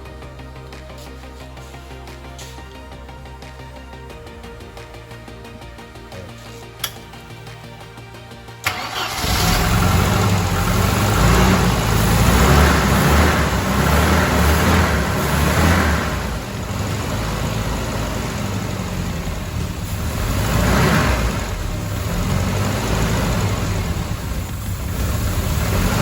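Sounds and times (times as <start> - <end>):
car engine revving: 8.6 - 26.0.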